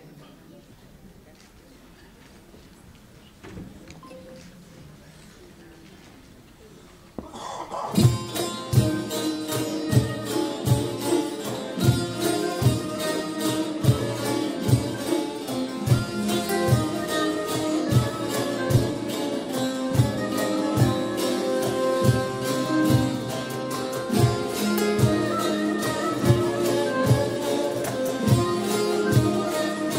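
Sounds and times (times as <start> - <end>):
plucked strings: 7.9 - 29.9.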